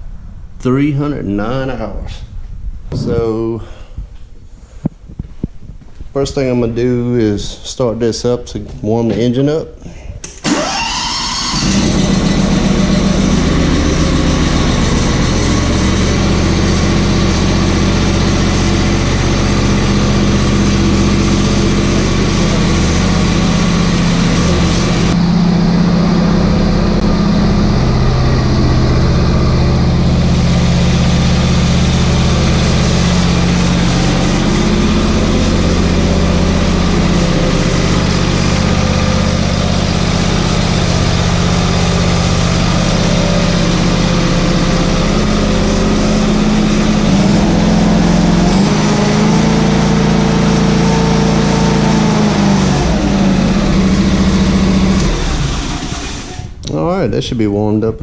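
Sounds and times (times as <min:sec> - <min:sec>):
mower engine idling: 0:10.4 - 0:56.8.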